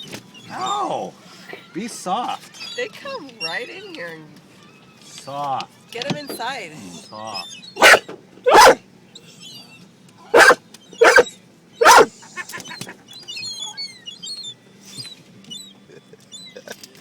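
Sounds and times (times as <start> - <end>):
small birds chirping: 6.4 - 16.8
dog barking: 7.8 - 8.8, 10.3 - 12.1.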